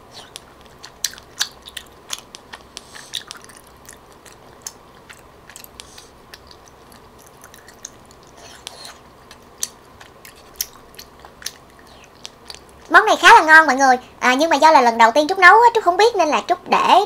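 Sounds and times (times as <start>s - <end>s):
chewing with wet mouth sounds: 0.1s - 12.9s.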